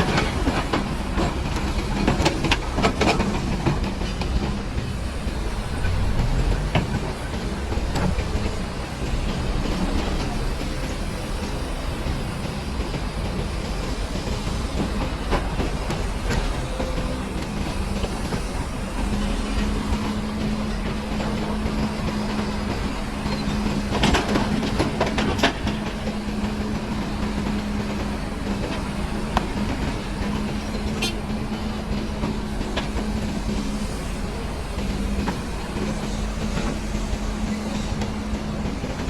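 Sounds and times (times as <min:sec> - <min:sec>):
heavy diesel machinery engine drone: 0:00.0 - 0:39.0.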